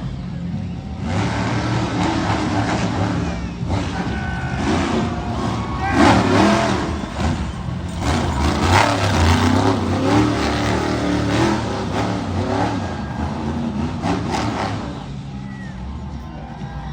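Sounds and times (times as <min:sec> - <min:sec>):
monster truck engine revving: 0:00.0 - 0:16.9.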